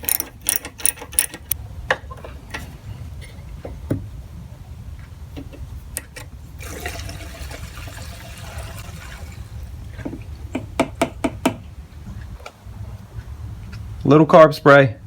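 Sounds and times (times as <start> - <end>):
gasoline pouring into fuel tank: 6.6 - 10.3.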